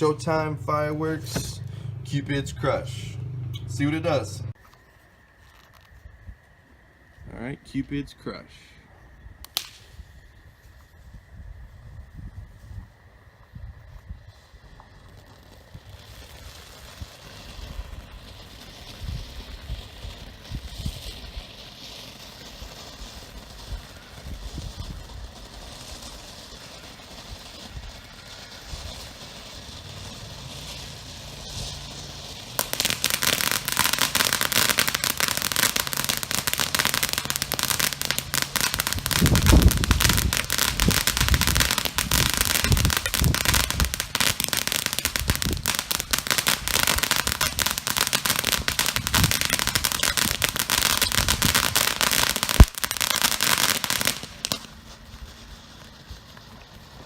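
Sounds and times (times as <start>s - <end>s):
firework crackling hiss: 0.0s - 3.2s, 3.8s - 7.8s, 8.5s - 57.0s
sharp crack: 0.0s - 4.2s, 9.4s - 10.0s, 25.5s - 54.8s.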